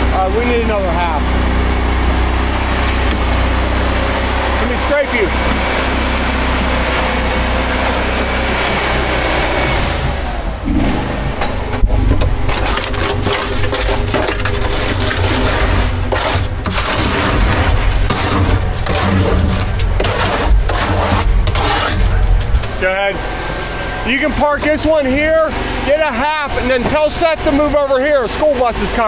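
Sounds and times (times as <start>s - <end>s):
truck engine humming: 0.0s - 29.0s
concrete scraping down chute: 12.0s - 29.0s.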